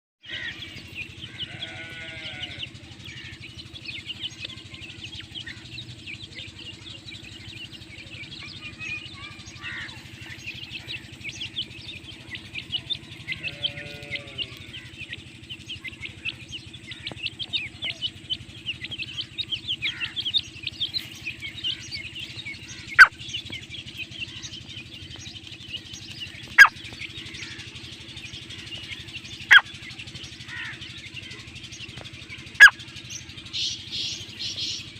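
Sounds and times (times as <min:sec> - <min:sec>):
birds twittering: 0:00.2 - 0:34.9
bleat-like animal calls: 0:00.3 - 0:03.4, 0:13.0 - 0:15.0
steady low hum: 0:00.3 - 0:34.9.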